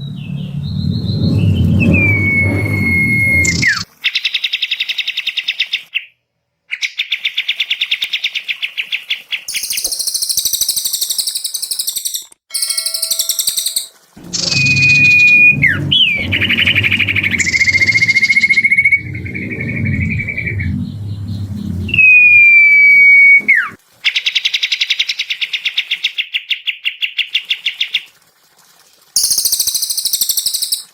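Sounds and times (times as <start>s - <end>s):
clear whistled bird note: 0.0s - 3.8s, 9.5s - 23.8s
low background rumble: 0.0s - 3.8s, 14.2s - 23.8s
very high bird chattering: 9.5s - 15.6s, 29.2s - 30.9s
songbirds singing trills: 9.5s - 23.7s, 29.2s - 30.9s.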